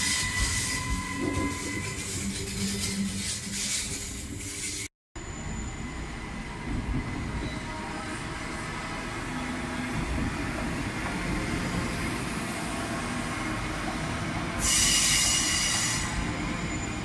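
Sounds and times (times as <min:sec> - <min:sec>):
high-pitched wheel squeal: 0:00.0 - 0:08.0, 0:14.6 - 0:17.0
electric train rumbling on rails: 0:00.0 - 0:17.0.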